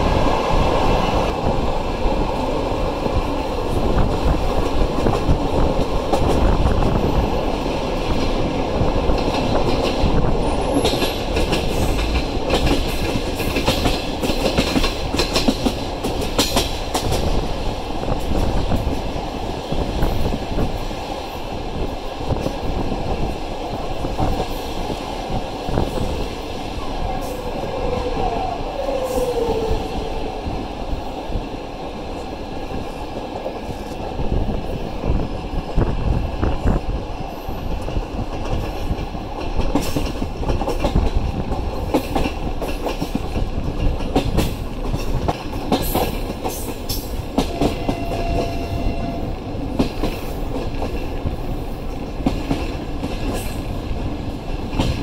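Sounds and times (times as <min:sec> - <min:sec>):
train wheels rumbling: 0:00.0 - 0:55.0
wheels clicking over rail joints: 0:09.1 - 0:17.4.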